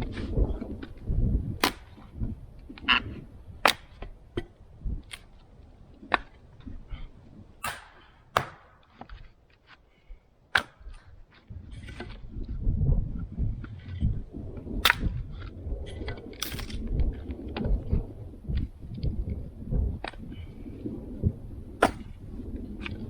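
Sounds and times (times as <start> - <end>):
axe splitting wood: 1.6 - 2.2, 3.6 - 4.5, 7.6 - 9.7, 10.5 - 11.2, 14.8 - 15.1, 21.8 - 22.3.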